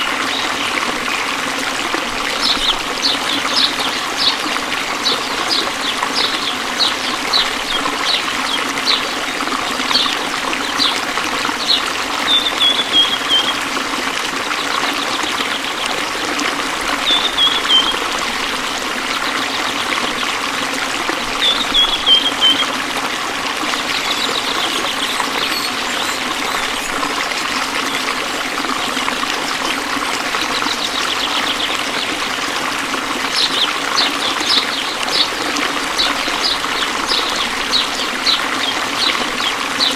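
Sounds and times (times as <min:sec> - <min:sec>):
waterfall running: 0:00.0 - 0:39.9
birds chirping: 0:02.3 - 0:13.7, 0:17.0 - 0:18.2, 0:21.2 - 0:28.2, 0:33.3 - 0:39.9
bird trills: 0:23.9 - 0:27.0.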